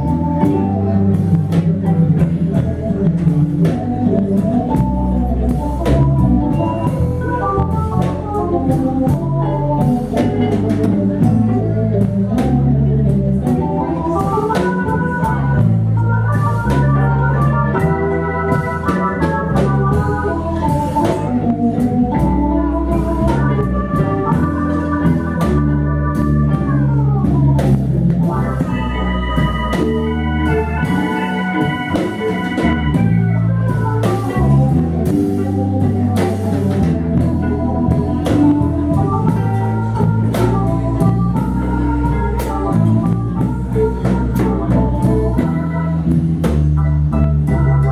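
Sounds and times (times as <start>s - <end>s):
bass: 0.0s - 47.9s
drums: 0.0s - 47.9s
keyboard lead: 0.0s - 47.9s.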